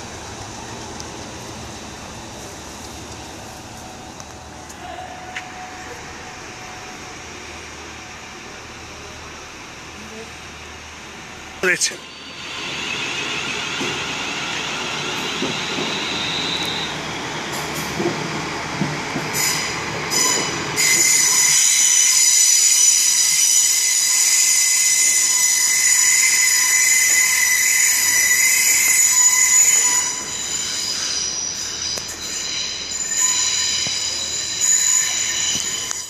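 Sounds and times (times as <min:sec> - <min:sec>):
train moving slowly: 0:00.0 - 0:36.0
metallic squeal of wheels on rail: 0:11.8 - 0:36.0.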